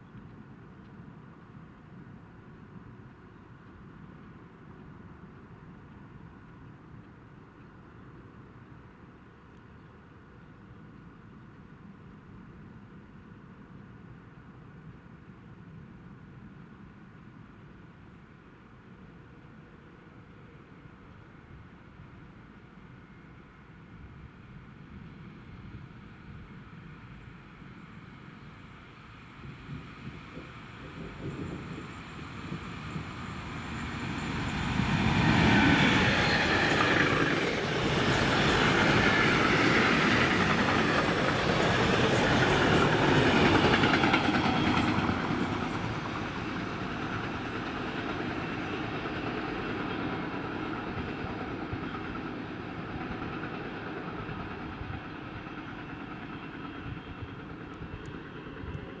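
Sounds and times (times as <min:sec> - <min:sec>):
electric locomotive passing: 0:24.4 - 0:59.0.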